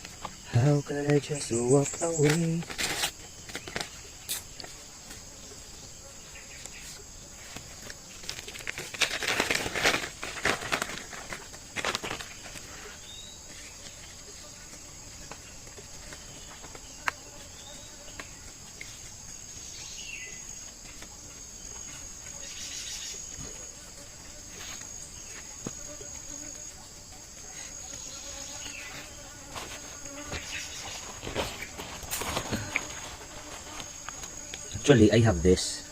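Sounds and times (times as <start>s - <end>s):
crickets droning: 0.0s - 35.9s
rustling: 2.2s - 4.8s, 6.6s - 14.3s, 28.5s - 34.6s.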